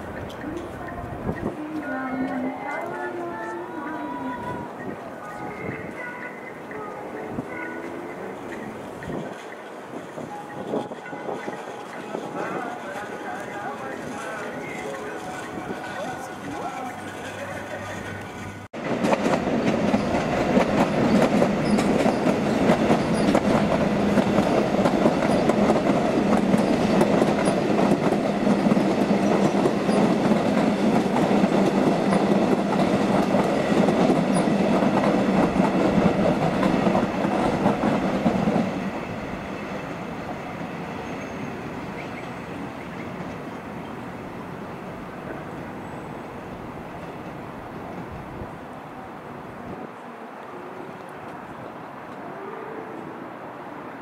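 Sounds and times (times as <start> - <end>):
train wheels clattering on rails: 7.4 - 43.6.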